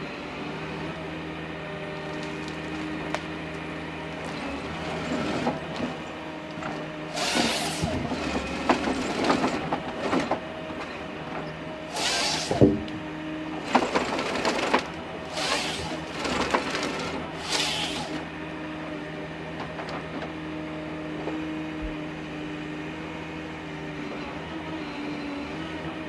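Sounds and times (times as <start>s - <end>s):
harvester engine running: 0.7s - 20.4s
wood cracking and splintering: 2.0s - 3.2s
harvesting head sawing wood: 4.2s - 10.3s, 11.8s - 18.3s.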